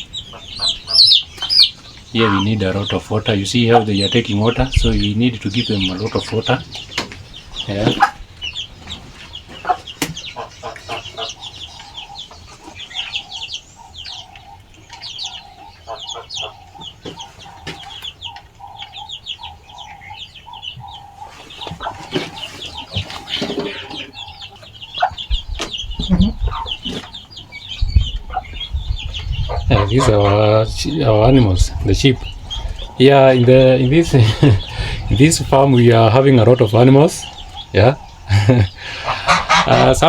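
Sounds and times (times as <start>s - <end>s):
chickens clucking: 0.0s - 40.0s
chicks peeping: 0.0s - 40.0s
low rumbling thumps: 4.1s - 8.4s, 24.1s - 38.7s.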